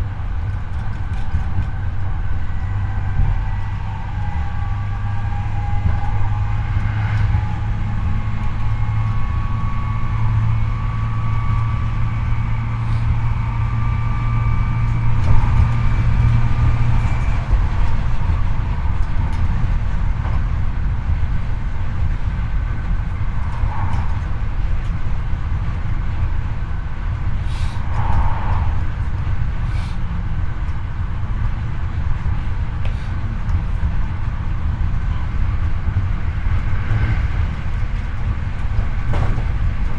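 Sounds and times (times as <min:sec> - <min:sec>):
train motor whine: 0:00.0 - 0:39.9
wheels rolling on rail: 0:00.0 - 0:39.9.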